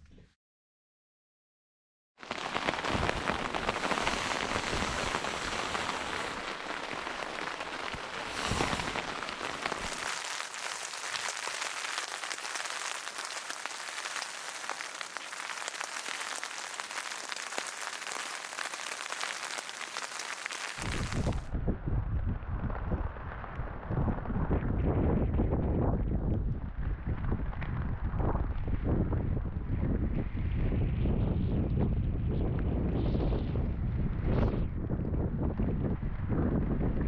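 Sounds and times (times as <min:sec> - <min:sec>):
rain falling: 0:02.2 - 0:21.5
deep rumble: 0:20.8 - 0:37.0.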